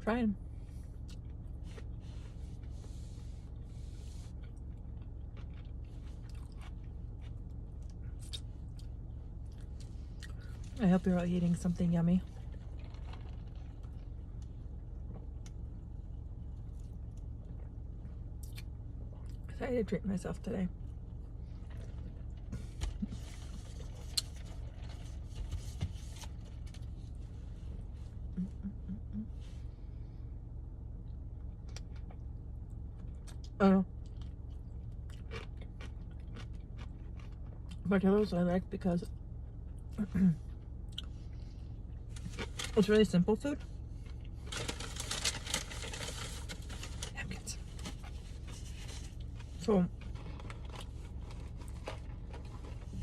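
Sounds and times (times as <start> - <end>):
steady low hum: 0.0 - 53.0
chewing and biting food: 4.2 - 10.8, 12.2 - 14.5, 31.1 - 37.9, 44.0 - 53.0
food wrappers rustling: 42.1 - 42.8, 44.0 - 49.4.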